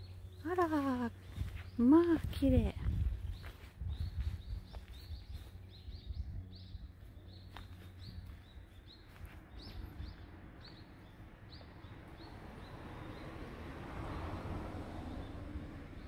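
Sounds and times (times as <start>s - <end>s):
small bird chirping: 2.9s - 13.2s.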